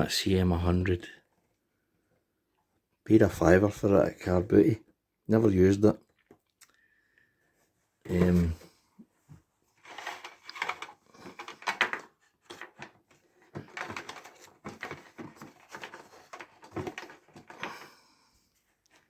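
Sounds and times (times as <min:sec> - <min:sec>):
box rustling and scraping: 0:09.6 - 0:19.0.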